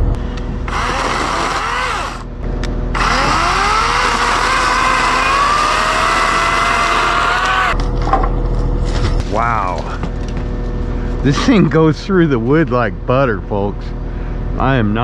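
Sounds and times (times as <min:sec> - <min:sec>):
electric chainsaw cutting: 0:00.0 - 0:09.0.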